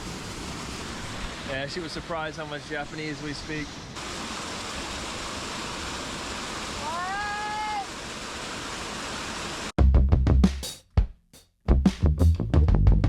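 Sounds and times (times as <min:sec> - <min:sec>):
waterfall rushing: 0:00.0 - 0:09.8
drum-led music: 0:09.8 - 0:13.0.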